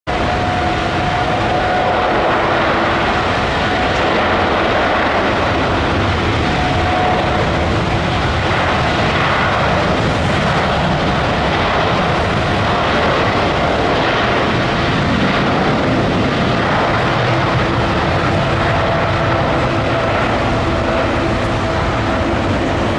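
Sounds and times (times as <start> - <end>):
jet engines roaring: 0.1 - 22.9.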